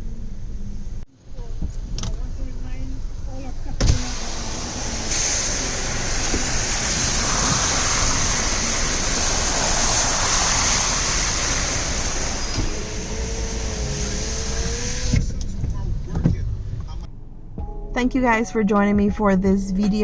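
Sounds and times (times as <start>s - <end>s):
tyres on wet road: 1.6s - 17.3s
rain hiss: 3.8s - 15.0s.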